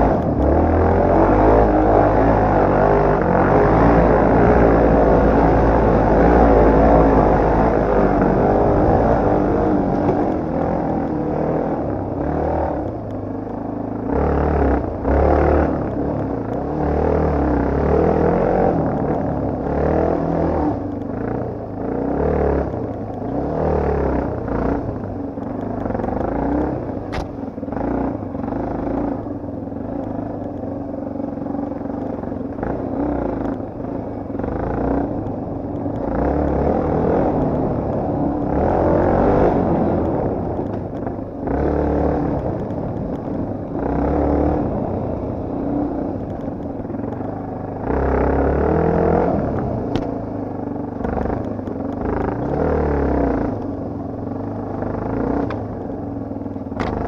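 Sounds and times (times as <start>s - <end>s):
motorcycle engine revving: 0.0s - 57.0s
sharp click: 27.1s - 27.5s.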